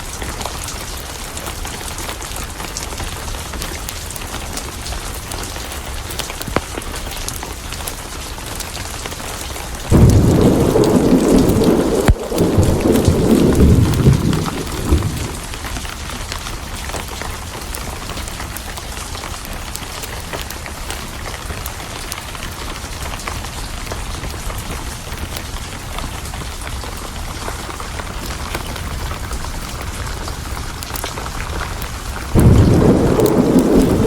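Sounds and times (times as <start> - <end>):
rain falling: 0.0 - 34.0
thunder rumbling: 9.9 - 16.0, 32.3 - 34.0.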